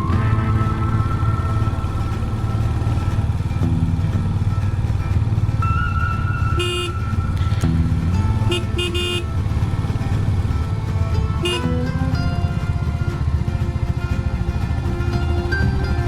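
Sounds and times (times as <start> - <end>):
motorcycle engine running: 0.0 - 16.0
short horn toot: 6.5 - 7.6, 8.5 - 9.4, 11.4 - 11.8.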